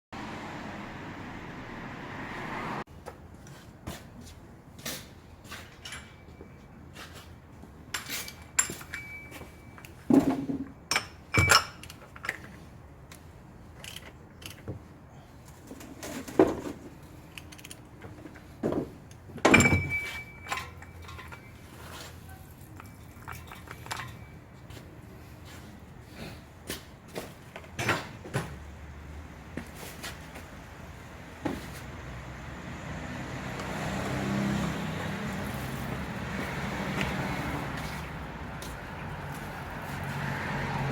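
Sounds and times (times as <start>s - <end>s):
vehicle hum: 0.2s - 2.9s, 27.0s - 40.9s
metal tools clanking: 5.4s - 6.7s, 7.9s - 12.6s, 19.4s - 24.4s.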